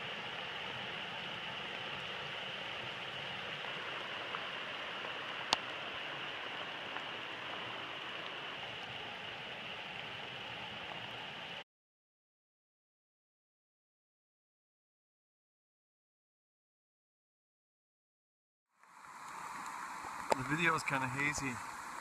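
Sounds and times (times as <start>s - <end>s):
rain falling: 0.0s - 11.6s, 18.8s - 22.0s.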